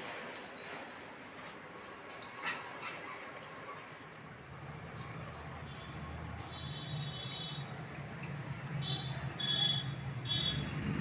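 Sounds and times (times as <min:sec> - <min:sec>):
small birds chirping: 0:04.2 - 0:11.0.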